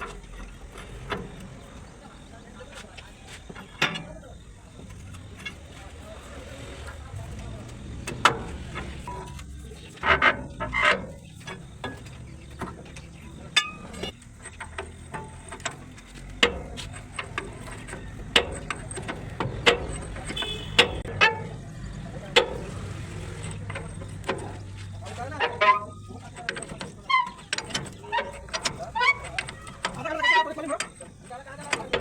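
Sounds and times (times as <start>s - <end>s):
metallic knocks of hand tools: 10.1s - 21.7s.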